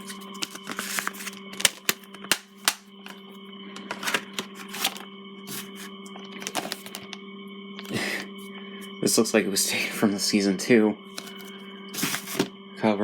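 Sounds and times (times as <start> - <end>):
electrical hum: 0.0 - 13.0
plastic case clicks and taps: 1.6 - 2.8.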